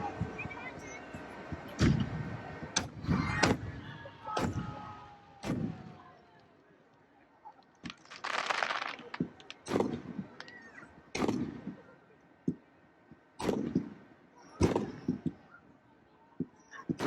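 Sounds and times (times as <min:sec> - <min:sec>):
firework bangs with echo: 0:01.8 - 0:06.1, 0:07.9 - 0:11.8, 0:13.4 - 0:14.0, 0:14.6 - 0:15.4
hissing crackle of fireworks: 0:07.8 - 0:11.8.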